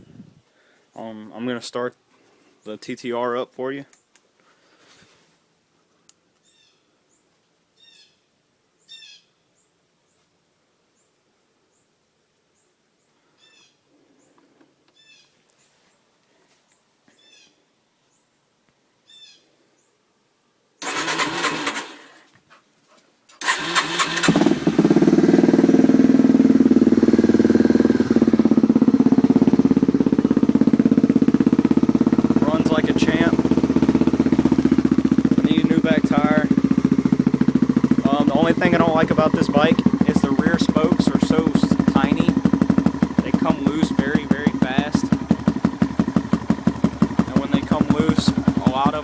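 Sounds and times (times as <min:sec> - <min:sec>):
faint bird chirps: 0:06.4 - 0:10.2, 0:12.6 - 0:14.4, 0:15.0 - 0:15.7, 0:16.7 - 0:18.3, 0:19.0 - 0:20.0
motorcycle engine cranking and running: 0:20.8 - 0:22.3, 0:23.4 - 0:49.0.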